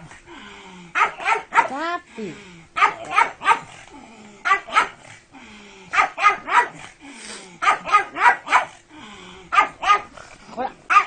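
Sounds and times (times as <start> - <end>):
dog barking: 1.0 - 1.8, 2.8 - 3.8, 4.4 - 5.0, 5.9 - 6.8, 7.6 - 8.8, 9.5 - 10.1.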